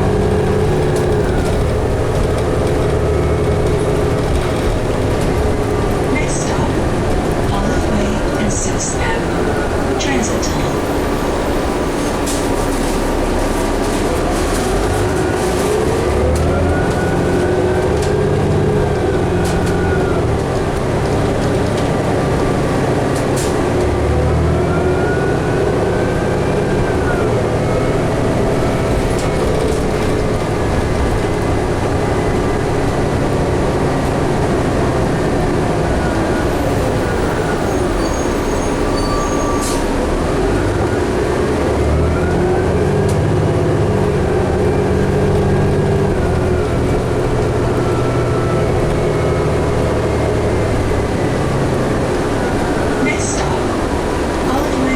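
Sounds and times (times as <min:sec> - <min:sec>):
bus road and engine noise: 0:00.0 - 0:54.9.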